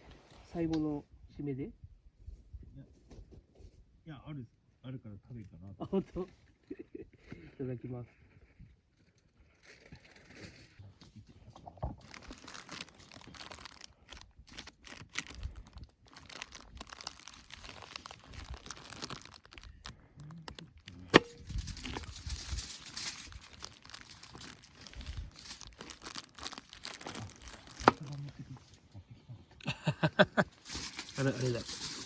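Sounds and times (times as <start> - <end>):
wrappers rustling and crackling: 9.4 - 10.8, 11.9 - 28.3, 30.6 - 32.0.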